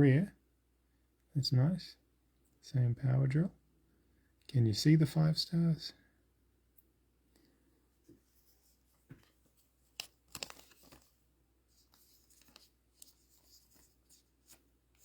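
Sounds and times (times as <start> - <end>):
trading cards rustling and clicking: 9.0 - 15.0.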